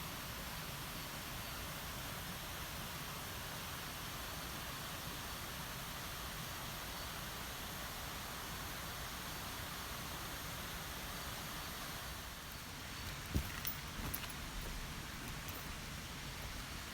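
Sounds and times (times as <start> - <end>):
mountain stream rushing: 12.4 - 16.9.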